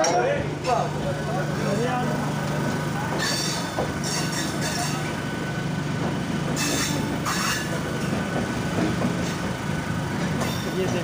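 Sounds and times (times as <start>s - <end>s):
electric train rolling with low hum: 0.0s - 11.0s
high-pitched wheel squeals: 3.2s - 5.1s, 6.6s - 7.8s.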